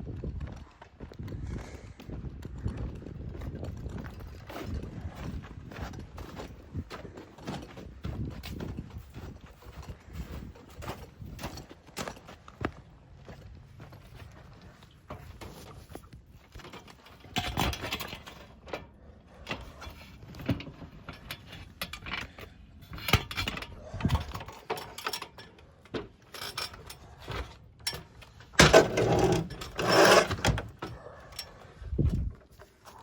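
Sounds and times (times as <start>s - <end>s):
footsteps on a shingled roof: 0.0s - 17.4s, 31.7s - 33.0s
scraping and thumping: 26.0s - 31.0s.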